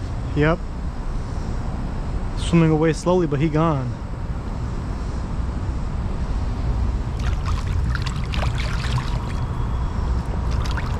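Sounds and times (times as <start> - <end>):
steady low rumble: 0.0 - 10.9
water trickling and splashing: 7.1 - 9.6, 10.2 - 10.9
small splashes and drips: 7.2 - 9.5, 10.4 - 10.9.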